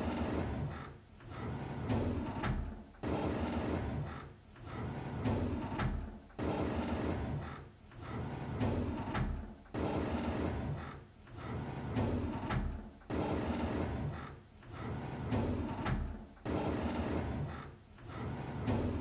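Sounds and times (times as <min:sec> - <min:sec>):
drawer sliding open: 0:08.0 - 0:19.0.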